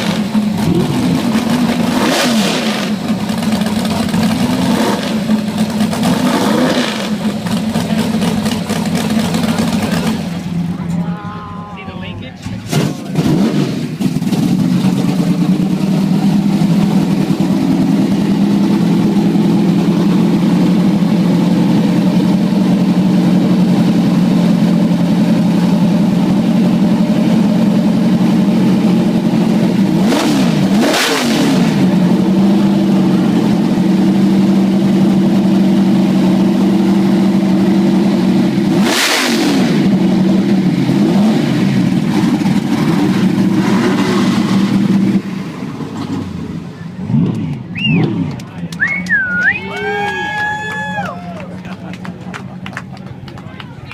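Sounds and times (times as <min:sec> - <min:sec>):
car engine running loud: 0:00.0 - 0:53.9
engine throttle blips: 0:00.0 - 0:53.9.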